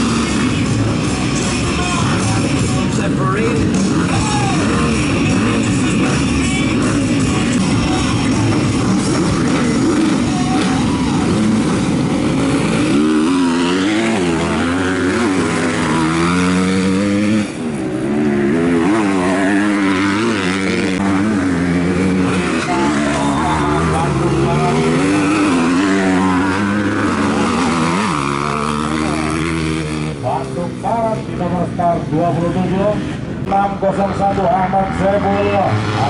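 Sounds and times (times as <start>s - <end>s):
motocross bike engines revving: 0.0s - 36.0s
single engine revving: 3.6s - 30.2s.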